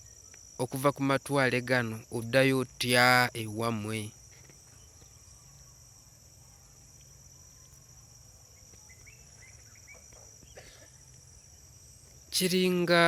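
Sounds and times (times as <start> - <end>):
insect chorus chirring: 0.0 - 13.0.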